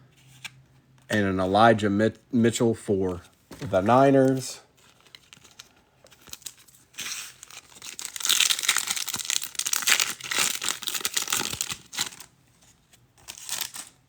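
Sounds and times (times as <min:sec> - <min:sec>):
foil wrapper tearing and crinkling: 0:04.9 - 0:12.3, 0:13.2 - 0:14.0.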